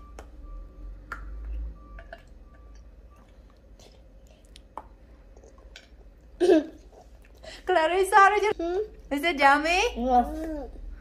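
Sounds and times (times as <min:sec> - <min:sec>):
children chewing: 0:01.4 - 0:07.6
mouth clicks and smacks: 0:03.5 - 0:05.9.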